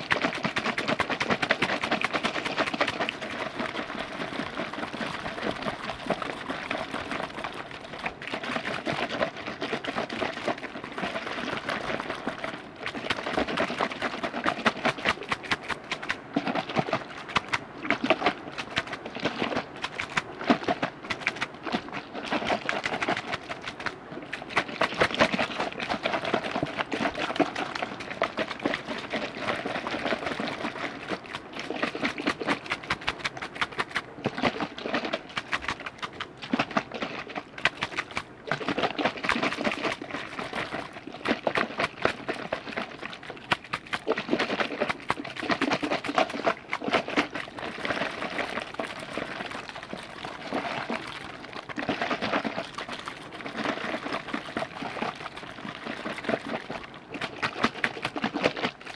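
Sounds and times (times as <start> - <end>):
wet liquid clicks and splashes: 0.0 - 58.9.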